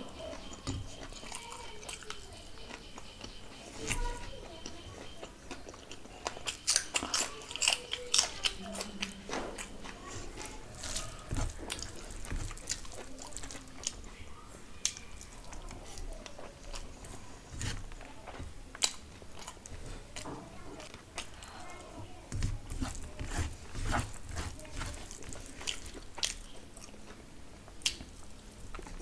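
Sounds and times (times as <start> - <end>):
crunching fried food: 0.0 - 29.0
fingers squishing rice on plate: 0.3 - 14.1, 20.8 - 29.0.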